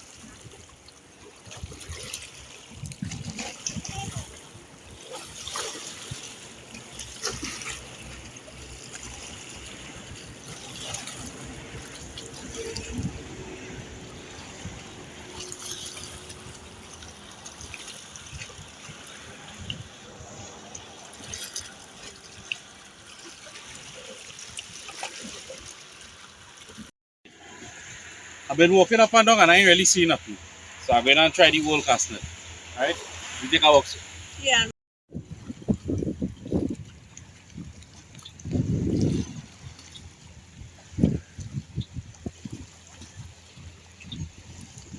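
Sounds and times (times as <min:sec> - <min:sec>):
small waves lapping: 0:00.0 - 0:44.9.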